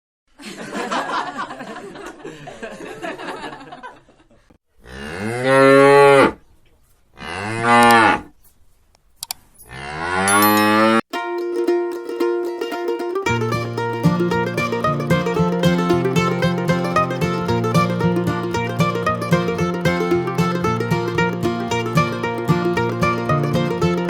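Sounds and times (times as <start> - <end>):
cattle mooing: 4.8 - 6.4, 7.2 - 8.3, 9.7 - 11.0
plucked-string music: 11.1 - 24.0.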